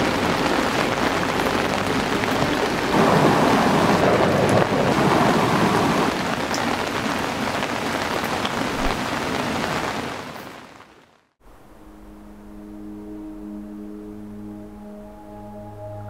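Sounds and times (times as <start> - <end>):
heavy rain falling: 0.0 - 11.3.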